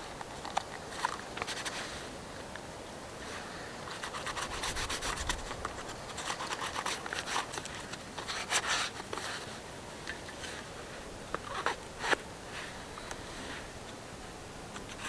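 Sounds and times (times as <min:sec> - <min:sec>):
scraping and rubbing strokes: 0:03.8 - 0:09.6.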